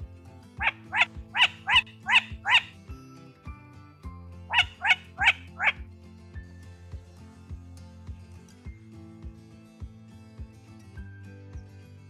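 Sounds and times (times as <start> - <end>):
soft background music: 0.0 - 12.0
large bird calling loudly: 0.6 - 2.8, 4.5 - 5.8.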